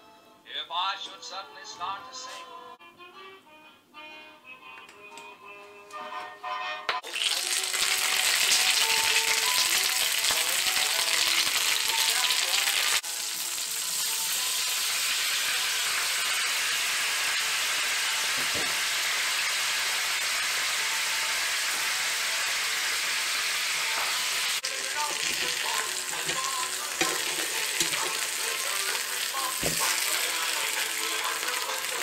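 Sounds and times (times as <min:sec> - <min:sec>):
food sizzling in a skillet: 0:07.0 - 0:32.0.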